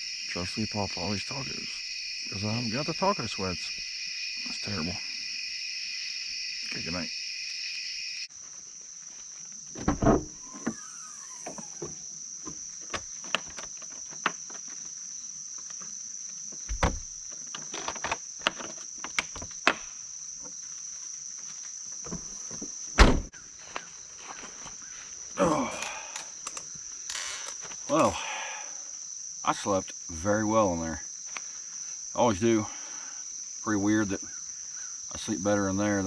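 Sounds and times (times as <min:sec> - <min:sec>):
crickets chirping: 0:00.0 - 0:36.0
loud thumps: 0:09.8 - 0:10.8, 0:16.7 - 0:17.2.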